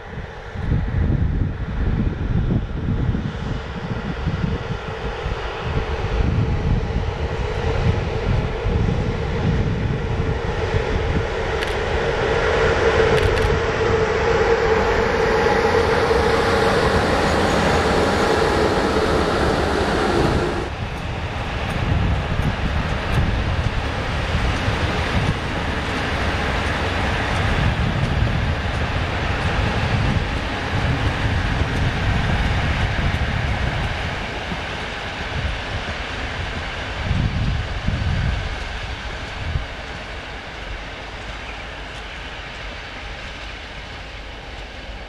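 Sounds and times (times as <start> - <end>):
train mid-pitched hum: 0.0 - 45.0
train wheels rumbling on track: 0.0 - 45.0.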